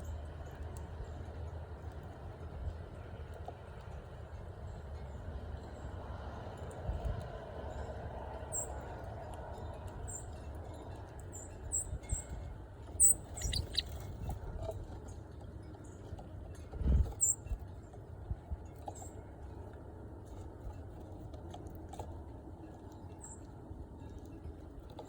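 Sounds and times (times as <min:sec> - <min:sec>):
small birds chirping: 0:12.9 - 0:14.4, 0:17.1 - 0:17.4.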